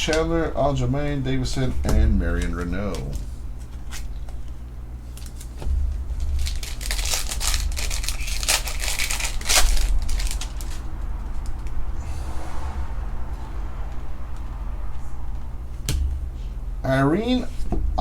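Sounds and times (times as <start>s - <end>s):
steady low hum: 0.0s - 18.0s
plastic wrapper tearing and crinkling: 5.1s - 10.9s.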